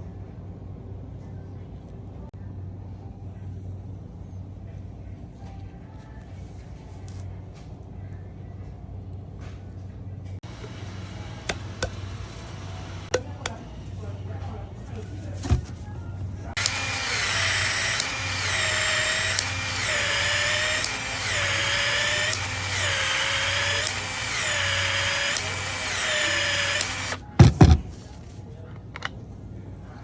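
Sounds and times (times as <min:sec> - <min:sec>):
power tool whining: 0:10.4 - 0:13.6, 0:16.5 - 0:27.8.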